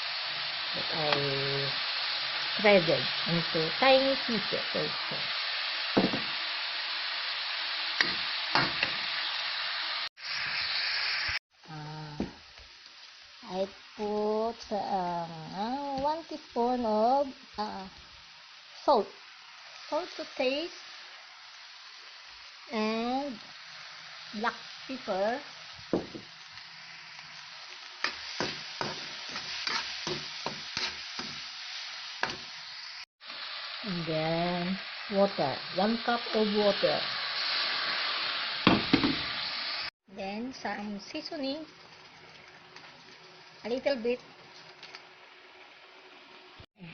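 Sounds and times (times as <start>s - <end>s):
food sizzling in a frying pan: 0.0s - 46.9s
utensil stirring and scraping pan: 28.0s - 32.6s, 40.8s - 45.1s.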